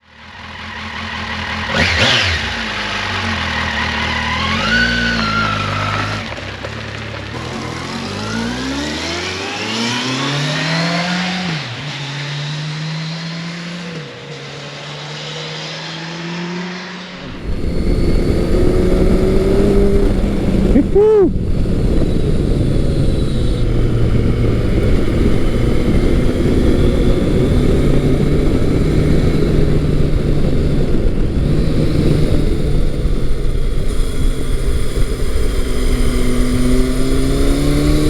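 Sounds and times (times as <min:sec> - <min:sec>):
motorcycle engine revving: 0:00.0 - 0:38.0
low rushing noise: 0:12.9 - 0:38.0.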